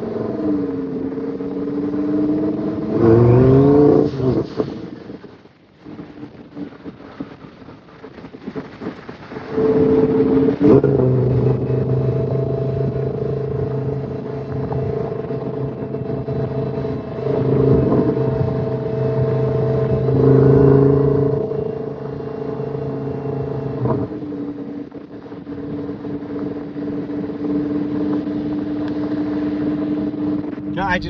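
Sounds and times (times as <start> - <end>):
car engine humming: 9.4 - 31.0.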